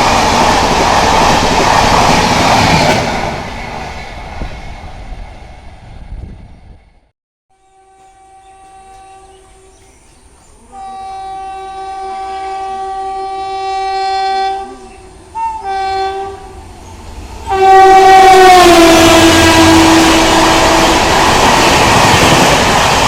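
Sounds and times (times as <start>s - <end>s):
train horn blasts: 7.5s - 10.0s, 10.7s - 16.7s, 17.4s - 21.2s.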